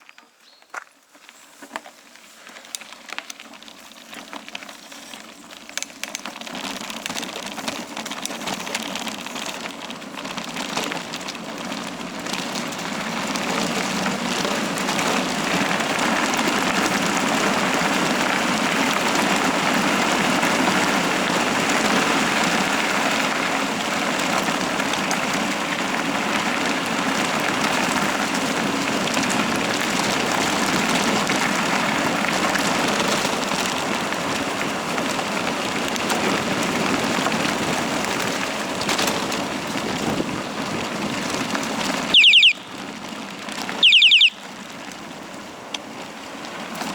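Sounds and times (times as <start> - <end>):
bicycle tyres rolling on trail: 0.0 - 46.9
clicks and rattles: 4.6 - 9.7.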